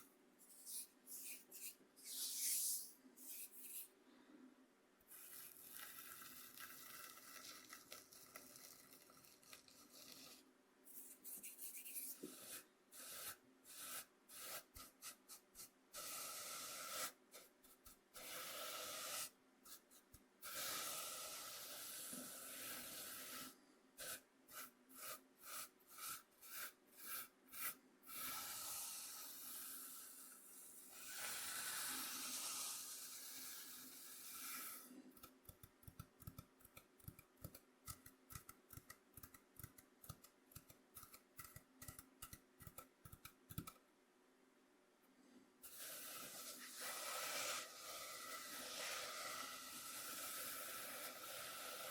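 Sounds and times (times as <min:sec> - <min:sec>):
cornmeal scraped on wooden board: 0:05.1 - 0:17.5, 0:20.4 - 0:35.3, 0:45.7 - 0:51.9.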